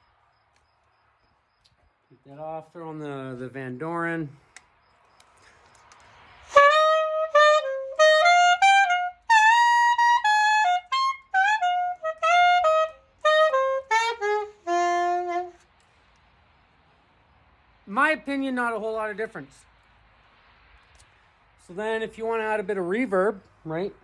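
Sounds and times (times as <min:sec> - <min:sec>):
breath before playing: 0:05.3 - 0:06.4, 0:21.0 - 0:21.5
soprano saxophone melody: 0:06.5 - 0:15.7.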